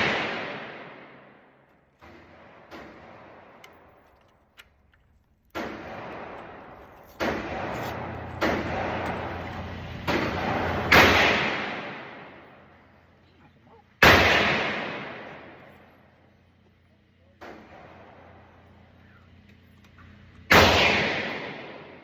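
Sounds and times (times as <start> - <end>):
echoing gunshots: 0.0 - 3.6, 5.5 - 12.8, 14.0 - 15.7, 20.5 - 22.0.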